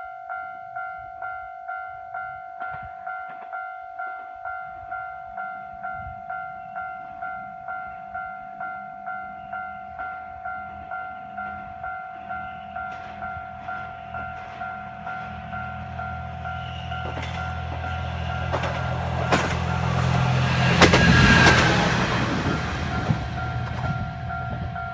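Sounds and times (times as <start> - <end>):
level crossing alarm ringing: 0.0 - 24.9
train rumbling past: 9.4 - 24.9
wheel clacks over rail joints: 17.0 - 24.0.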